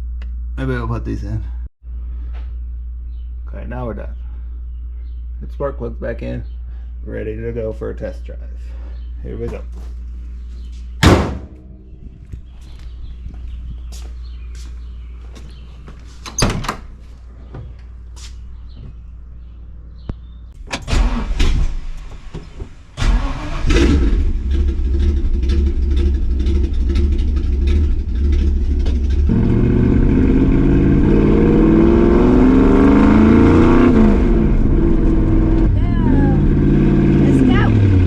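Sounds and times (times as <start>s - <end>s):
car engine cranking and starting: 20.6s - 38.0s
car engine running: 23.0s - 38.0s.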